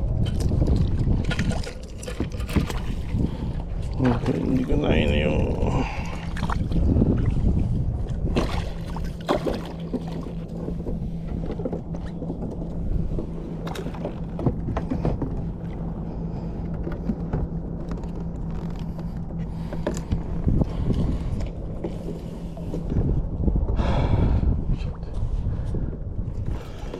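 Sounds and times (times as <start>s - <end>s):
steady low hum: 0.0s - 26.9s
water noise around kayak: 0.0s - 26.9s
wind rumbling on microphone: 0.0s - 26.9s
short knocks and splashes: 0.2s - 4.8s, 8.3s - 15.5s.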